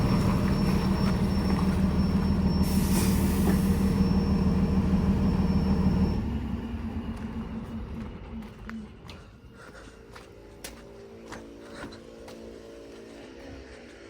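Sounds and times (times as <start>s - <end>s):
heavy diesel vehicle rumbling: 0.0s - 9.1s.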